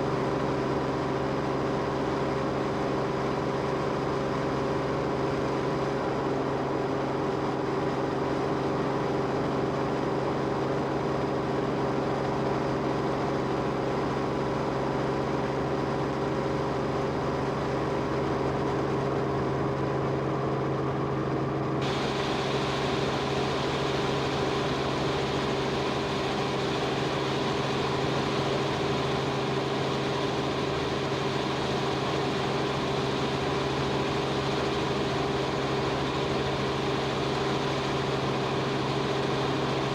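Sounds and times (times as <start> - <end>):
aircraft engine drone: 19.0 - 39.9.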